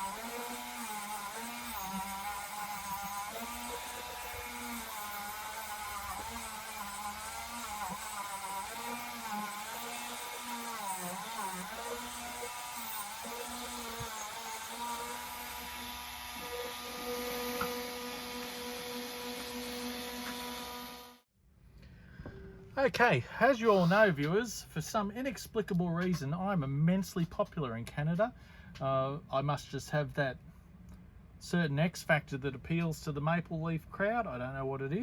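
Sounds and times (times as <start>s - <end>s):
power drill motor running: 0.0s - 21.2s.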